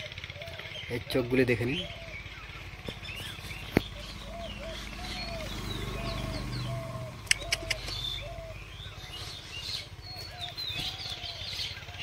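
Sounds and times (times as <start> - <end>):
birds chirping and twittering: 0.0 - 12.0
sharp clicks: 7.2 - 8.0.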